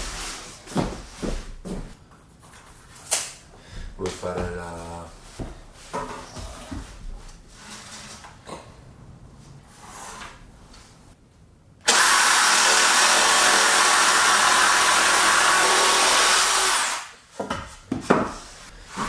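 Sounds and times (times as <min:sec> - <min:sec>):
power tool running: 0:11.8 - 0:17.1.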